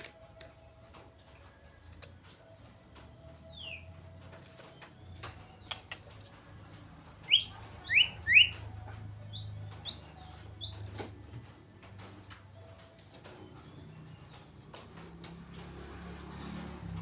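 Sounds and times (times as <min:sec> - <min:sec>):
bird singing whistled notes: 0:03.5 - 0:04.0, 0:07.2 - 0:08.6, 0:09.2 - 0:11.0
sharp bird clicks: 0:05.2 - 0:06.2.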